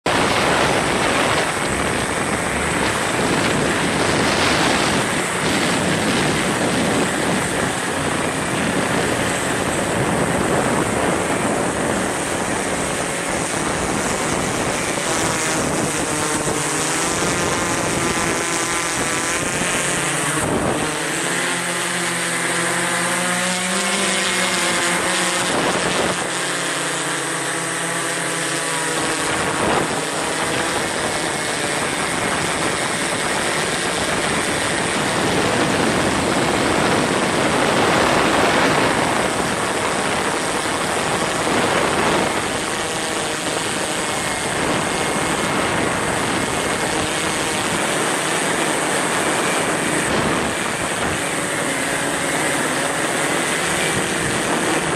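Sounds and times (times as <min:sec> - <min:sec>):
wavering motor hum: 0:00.0 - 0:54.9
wind buffeting microphone: 0:00.0 - 0:54.9.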